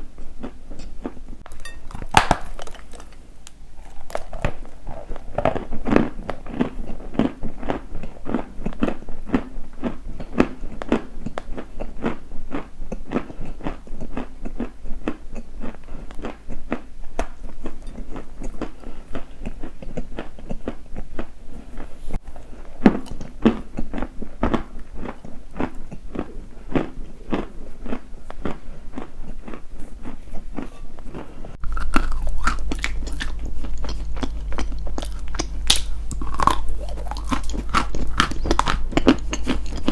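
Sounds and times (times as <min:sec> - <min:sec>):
chewing crunchy food: 0:00.0 - 0:39.9
steady low hum: 0:21.3 - 0:39.9.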